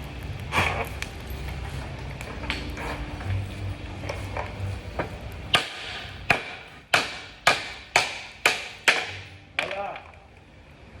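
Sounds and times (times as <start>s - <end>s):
hammer striking steel: 5.0s - 10.0s.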